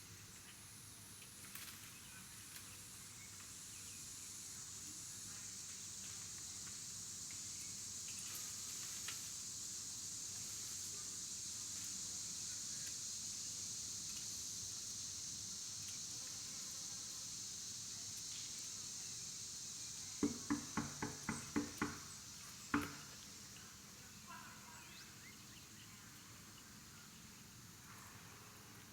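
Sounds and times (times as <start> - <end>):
high-pitched insect chorus: 0.0 - 28.9.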